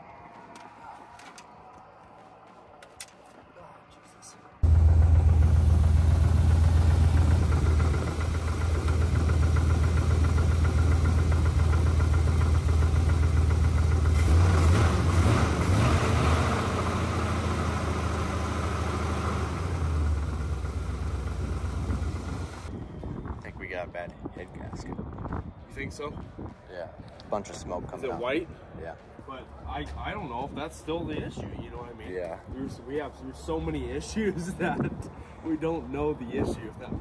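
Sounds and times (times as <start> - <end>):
car engine idling: 4.6 - 15.7, 16.7 - 22.7.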